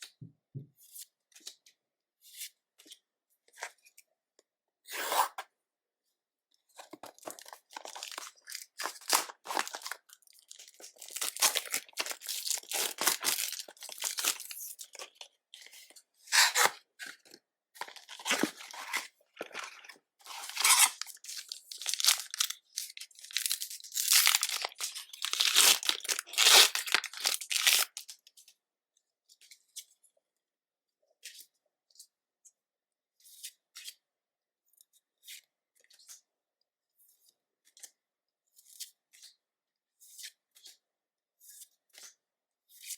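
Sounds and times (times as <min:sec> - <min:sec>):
card packs torn open and crinkled: 0:06.8 - 0:15.3, 0:16.3 - 0:16.8, 0:17.8 - 0:28.2.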